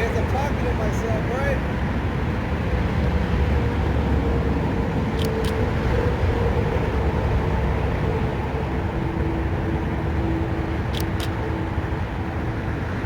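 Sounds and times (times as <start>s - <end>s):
low vehicle rumble: 0.0s - 13.0s
short clicks: 10.9s - 11.4s.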